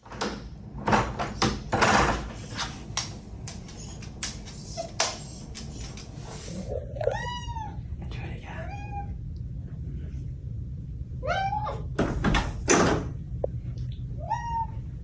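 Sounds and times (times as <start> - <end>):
cat meowing: 6.9 - 7.8, 11.2 - 11.9, 14.2 - 14.8.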